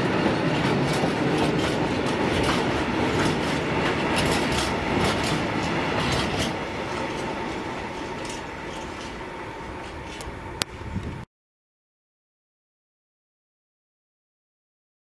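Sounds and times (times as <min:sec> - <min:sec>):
freight wagons rolling past: 0:00.0 - 0:11.0
wheels clicking over rail joints: 0:00.0 - 0:11.2.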